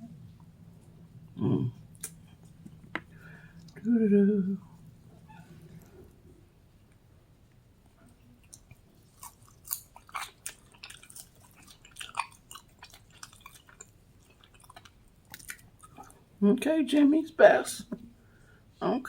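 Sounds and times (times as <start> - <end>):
chewing crispy chicken: 7.8 - 16.3.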